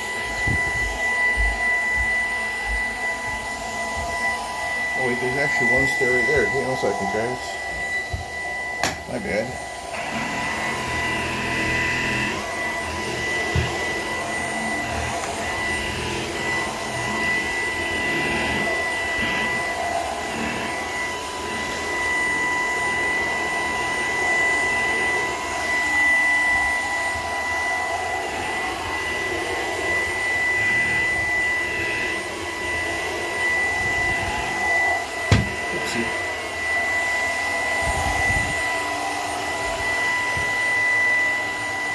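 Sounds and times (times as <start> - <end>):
hand vacuum running: 0.0 - 41.9.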